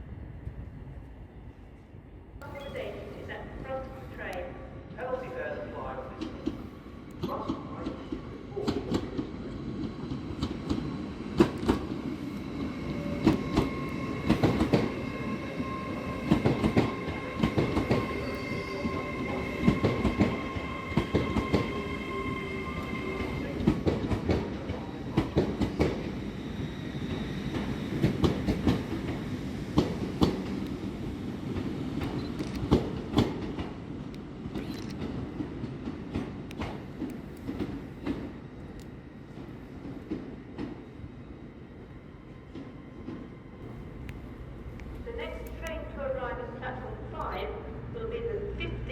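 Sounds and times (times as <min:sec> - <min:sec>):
train rumble: 0:00.0 - 0:48.9.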